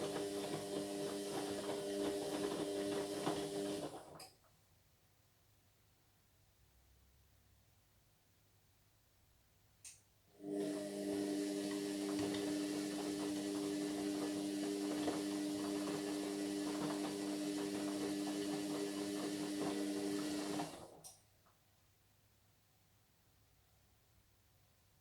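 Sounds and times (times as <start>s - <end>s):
washing machine hum: 0.0s - 4.2s, 10.4s - 21.1s.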